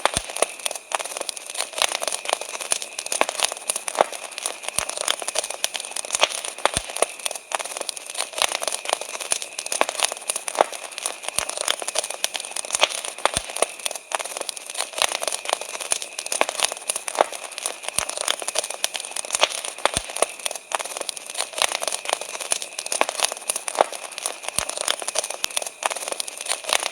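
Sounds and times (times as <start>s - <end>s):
campfire crackling and popping: 0.0s - 26.9s.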